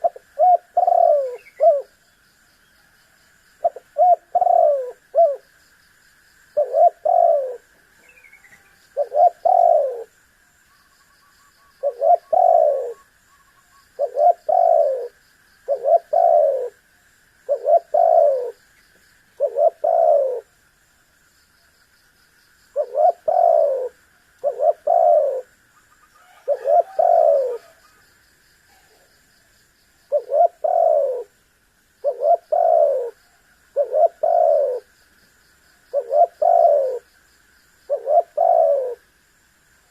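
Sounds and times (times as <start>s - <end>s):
dove cooing: 0.0s - 2.0s, 3.6s - 5.5s, 6.6s - 10.1s, 11.8s - 13.1s, 13.9s - 16.8s, 17.5s - 18.6s, 19.4s - 20.5s, 22.8s - 25.5s, 26.1s - 28.0s, 30.1s - 31.4s, 32.0s - 34.9s, 35.9s - 37.1s, 37.9s - 39.0s.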